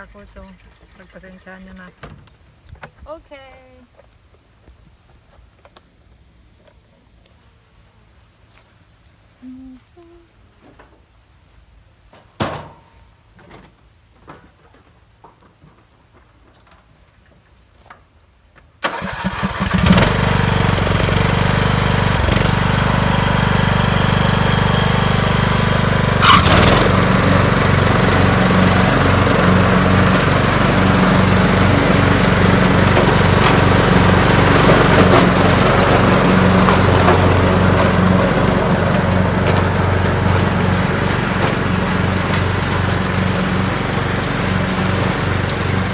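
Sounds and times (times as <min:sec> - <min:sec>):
string trimmer engine running: 0:18.9 - 0:45.9.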